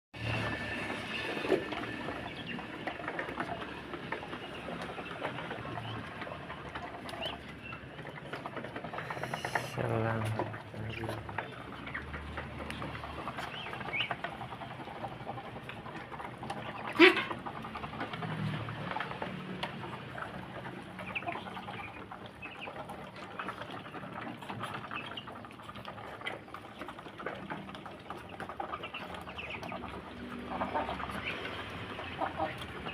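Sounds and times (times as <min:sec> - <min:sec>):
ducks calling: 0:00.9 - 0:32.9.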